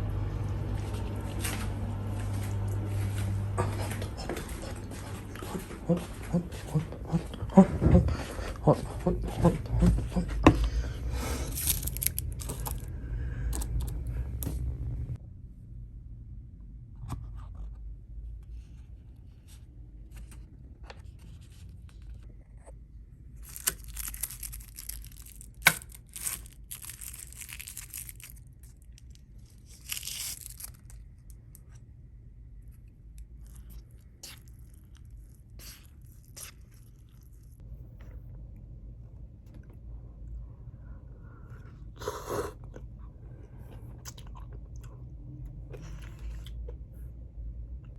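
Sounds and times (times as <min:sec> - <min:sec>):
low room hum: 0:00.0 - 0:47.9
packaging being torn open: 0:11.5 - 0:12.9, 0:23.4 - 0:31.3.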